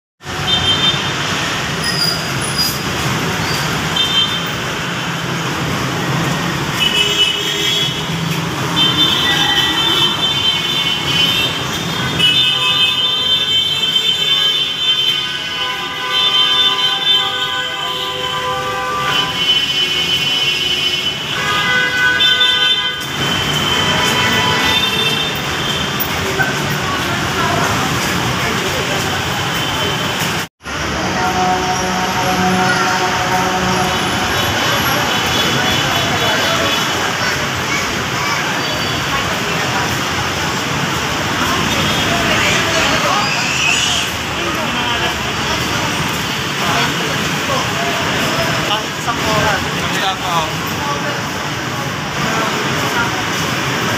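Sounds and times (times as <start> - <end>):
heavy road traffic: 0.2 - 53.9
street noise: 0.2 - 53.9
metro train whining: 30.6 - 37.2.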